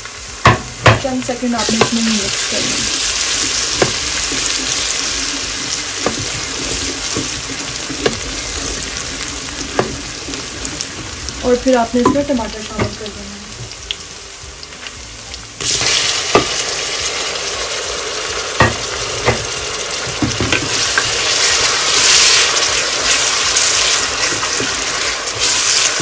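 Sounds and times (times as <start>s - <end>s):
tomatoes sizzling in hot oil: 0.0s - 26.0s
wooden spoon knocking pot: 0.4s - 2.2s, 3.7s - 4.8s, 6.0s - 9.0s, 9.6s - 11.1s, 12.0s - 13.1s, 18.6s - 19.5s.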